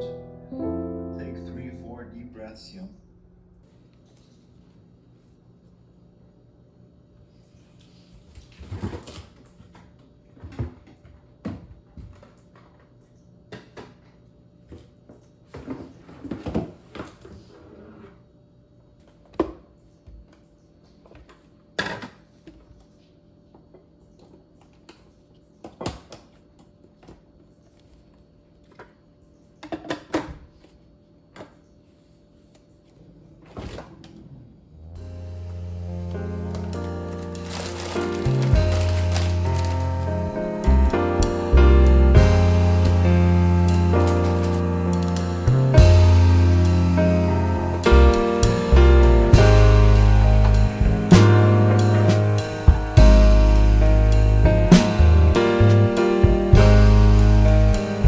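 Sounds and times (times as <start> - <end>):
faint steady hum: 34.3 - 58.0
rustling and clattering: 36.4 - 47.0.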